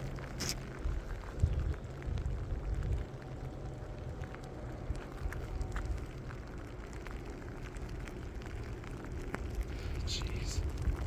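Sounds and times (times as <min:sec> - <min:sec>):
wind rumbling on microphone: 0:00.0 - 0:11.0
graupel pellets ticking: 0:03.0 - 0:11.0.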